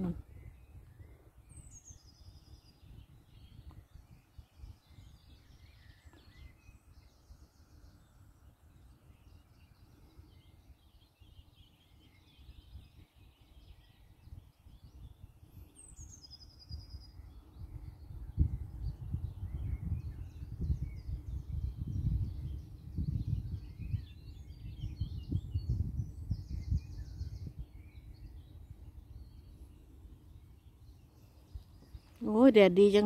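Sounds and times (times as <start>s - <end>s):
faint bird chirps: 0.0s - 33.0s
bird song falling in pitch: 10.4s - 29.6s.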